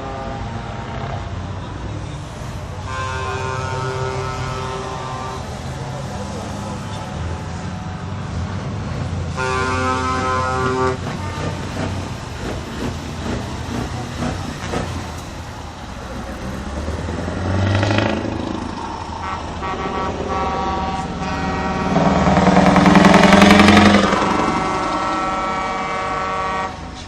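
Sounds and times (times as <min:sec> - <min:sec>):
truck horns long tones: 0:00.0 - 0:01.4, 0:02.6 - 0:07.6, 0:09.3 - 0:12.6, 0:17.3 - 0:27.0
truck engines running: 0:00.0 - 0:27.0.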